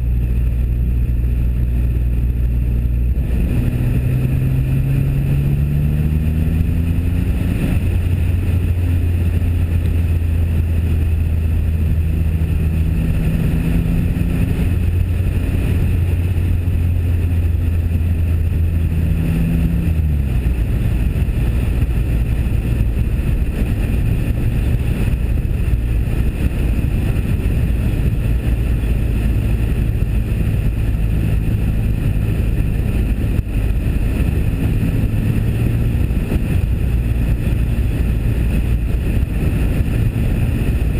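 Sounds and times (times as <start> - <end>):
car engine running: 0.0 - 40.9
wind rumble on microphone: 0.0 - 40.9.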